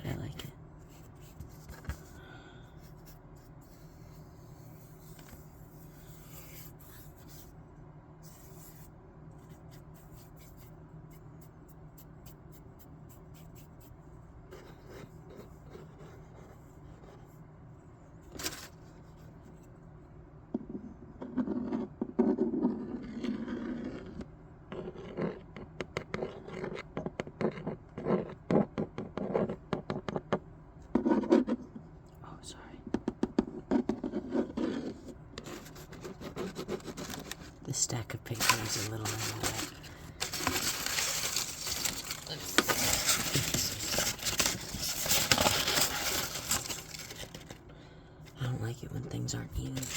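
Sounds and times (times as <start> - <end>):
paper rustling and scraping: 18.2 - 19.6, 35.4 - 37.6, 38.3 - 47.7, 49.6 - 49.9.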